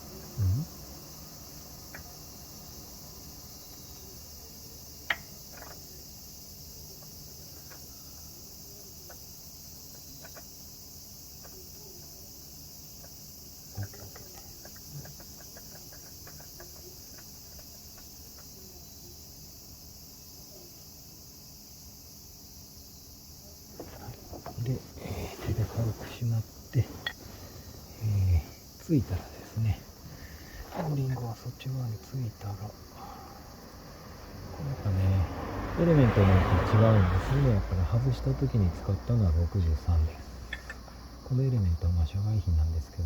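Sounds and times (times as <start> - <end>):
insects chirring: 0.0 - 43.0.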